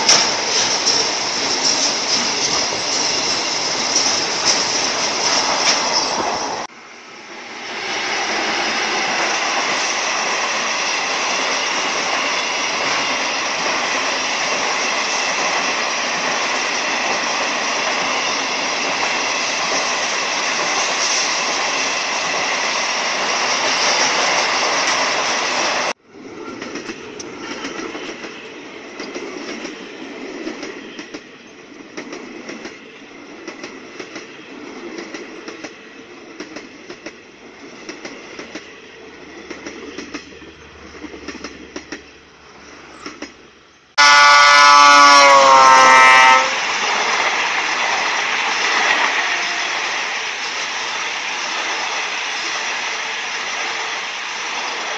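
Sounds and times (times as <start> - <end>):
train carriages rushing past: 0.0 - 54.9
wheels clacking over rail joints: 26.4 - 43.6.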